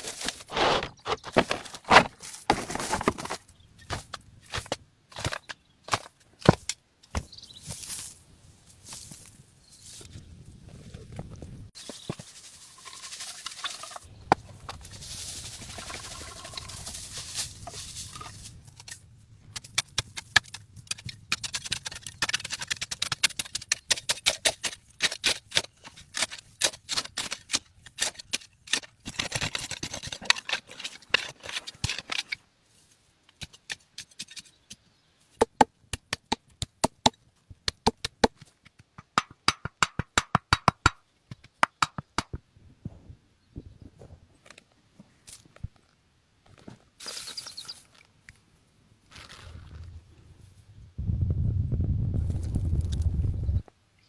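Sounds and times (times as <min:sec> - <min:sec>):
rustling hiss: 0:11.8 - 0:19.1
sharp knocks and cracks: 0:35.4 - 0:42.4.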